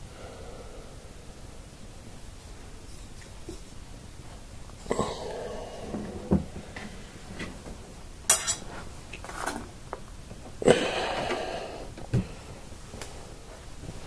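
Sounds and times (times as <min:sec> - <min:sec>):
clatter with rustling scrape: 0:08.4 - 0:09.7.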